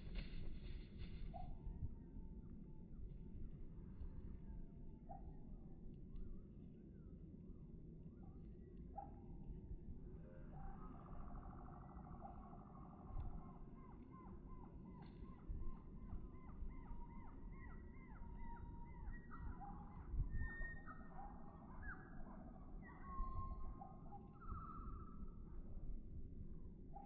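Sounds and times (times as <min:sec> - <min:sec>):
steady low rumble: 0:00.0 - 0:04.0
songbirds singing and calling: 0:10.6 - 0:25.3.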